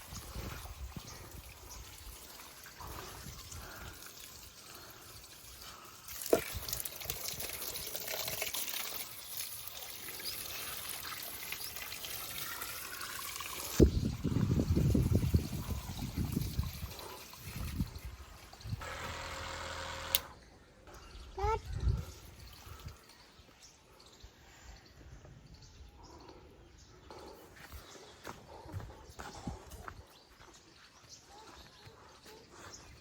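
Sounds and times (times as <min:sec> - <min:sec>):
water pouring and trickling: 0:00.0 - 0:18.9, 0:21.2 - 0:24.2.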